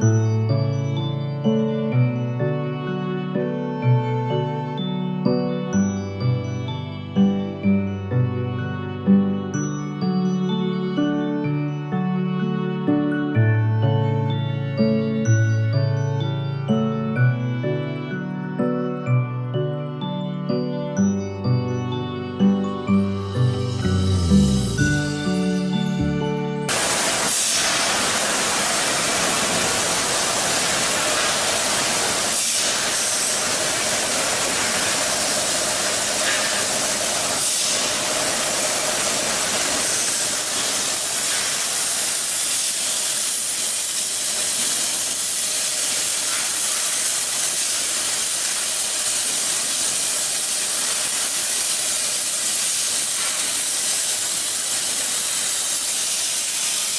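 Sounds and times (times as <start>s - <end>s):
loud steady hissing: 23.0s - 56.9s.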